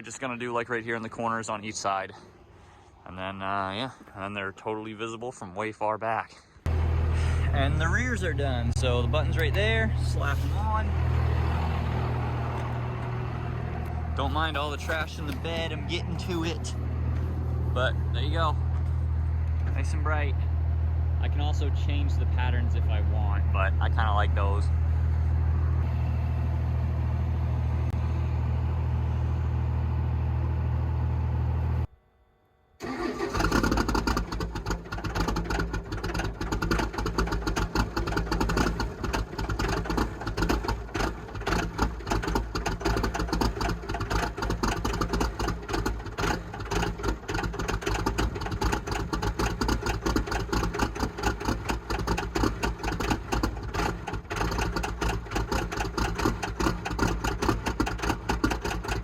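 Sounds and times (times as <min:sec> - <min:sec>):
diesel engine clattering: 0:06.6 - 0:31.9, 0:32.8 - 0:59.0
steady low drone: 0:06.7 - 0:31.9.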